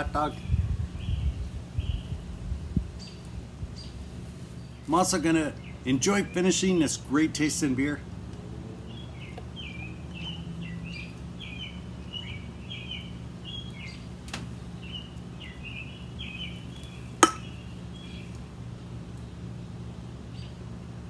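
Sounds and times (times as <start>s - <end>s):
low background hum: 0.0s - 21.0s
bird chirping: 8.9s - 18.4s.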